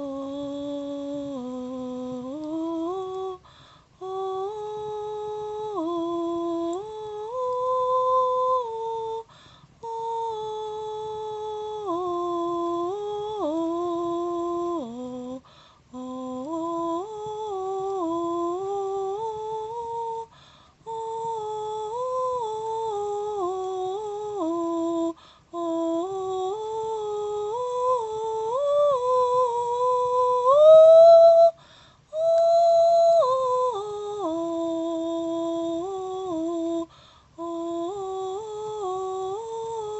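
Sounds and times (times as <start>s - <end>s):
person humming long notes: 0.0s - 3.4s, 4.0s - 20.3s, 20.9s - 39.9s
breath: 3.4s - 4.0s, 9.3s - 9.8s, 15.4s - 15.9s, 20.3s - 20.8s, 25.2s - 25.5s, 31.6s - 32.1s, 36.9s - 37.4s.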